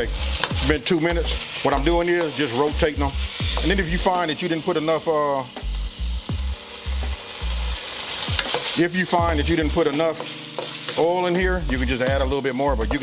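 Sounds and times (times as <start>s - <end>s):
metal spatula scraping wok: 0.0s - 4.5s, 7.9s - 11.1s
chicken sizzling in oil: 0.0s - 13.0s.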